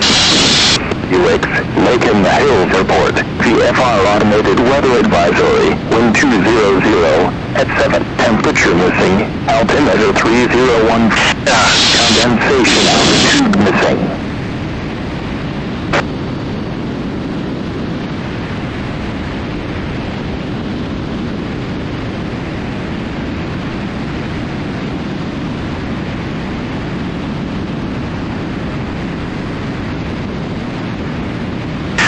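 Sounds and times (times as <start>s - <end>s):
airplane engine noise: 0.0s - 32.0s
wind rush: 0.0s - 32.0s.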